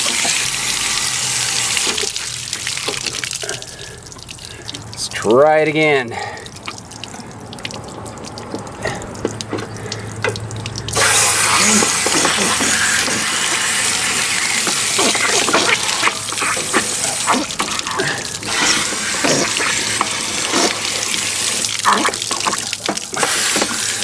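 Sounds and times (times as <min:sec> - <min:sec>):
water trickling and dripping: 0:00.0 - 0:24.0
strong rush of water: 0:10.8 - 0:24.0.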